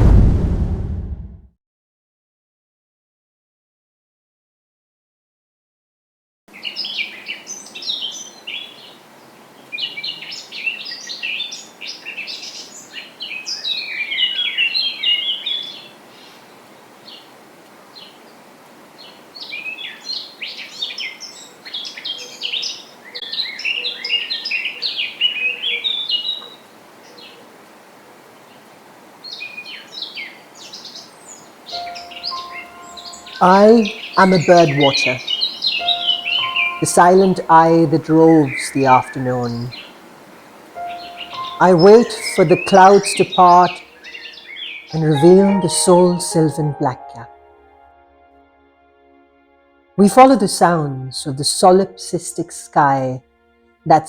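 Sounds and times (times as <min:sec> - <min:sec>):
steady background hiss: 0:06.5 - 0:47.9, 0:49.6 - 0:54.0
songbird warbling: 0:29.7 - 0:40.0, 0:40.8 - 0:47.3.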